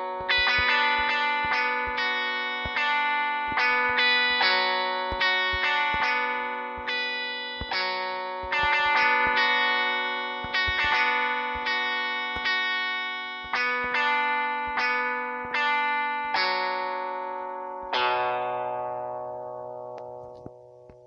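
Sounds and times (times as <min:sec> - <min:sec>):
electric guitar notes and chords: 0:00.0 - 0:21.0.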